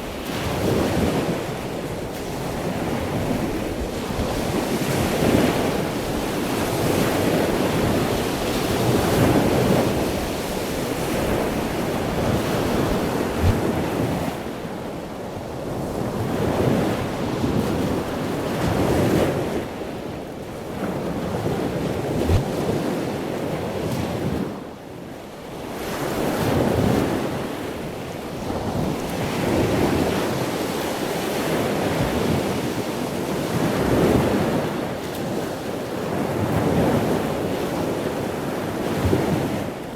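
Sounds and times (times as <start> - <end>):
wind buffeting microphone: 0.0 - 20.0
sea waves breaking on beach: 0.0 - 39.9.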